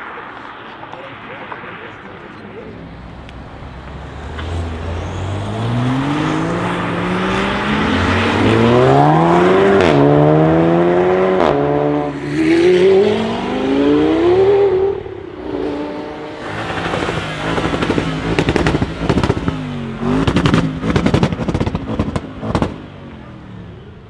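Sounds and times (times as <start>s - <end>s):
car engine accelerating hard: 1.7s - 24.0s.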